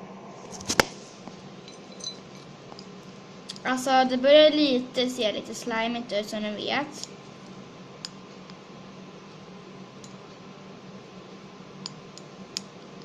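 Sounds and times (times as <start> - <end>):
steady low hum: 0.0 - 13.0
utensil clinking against dish: 1.6 - 2.4.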